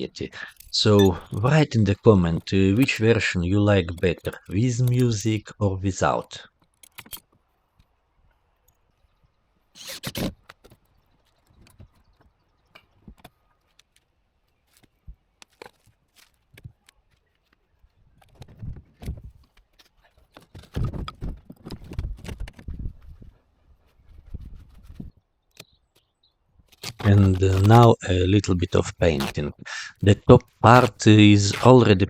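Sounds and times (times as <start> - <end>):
rustling clatter: 15.5 - 25.2.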